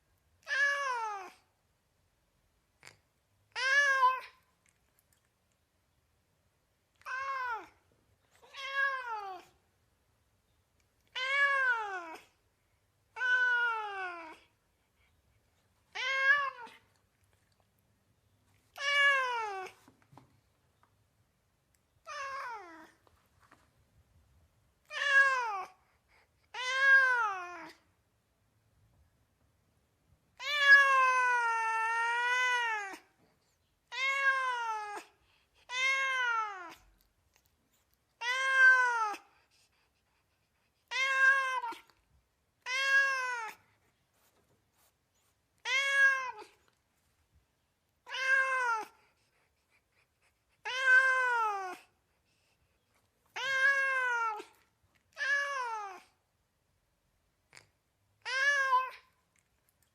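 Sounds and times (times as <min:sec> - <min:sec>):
cat meowing: 0:07.0 - 0:07.8, 0:08.4 - 0:09.6, 0:11.0 - 0:12.3, 0:15.9 - 0:16.8, 0:30.4 - 0:33.1, 0:33.9 - 0:35.1, 0:35.7 - 0:36.9, 0:38.2 - 0:39.2, 0:40.8 - 0:42.0, 0:42.6 - 0:43.6, 0:45.6 - 0:46.6, 0:48.0 - 0:49.0, 0:50.6 - 0:51.9, 0:53.3 - 0:56.1, 0:58.2 - 0:59.2.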